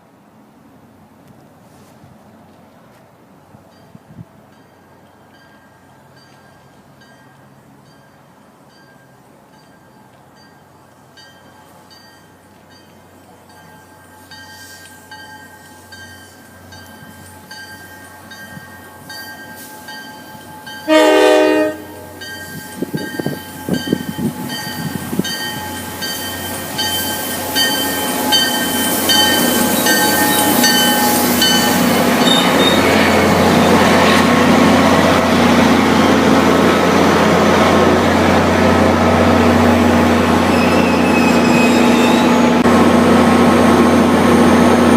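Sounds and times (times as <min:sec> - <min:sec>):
train rumble: 0:00.0 - 0:44.9
train horn blast: 0:20.8 - 0:22.2
bell dinging: 0:22.2 - 0:32.8.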